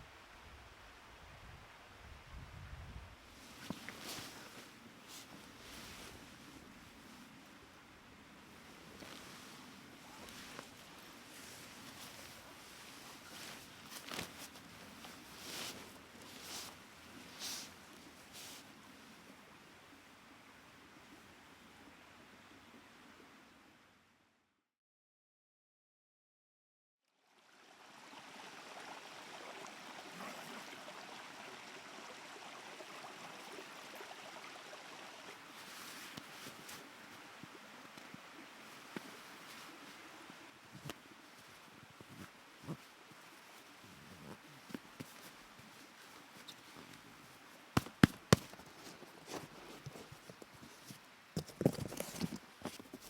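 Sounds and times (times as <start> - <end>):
rustling: 3.3 - 7.4, 8.5 - 19.2, 35.5 - 36.9, 40.8 - 53.0
stream babbling: 27.4 - 52.0.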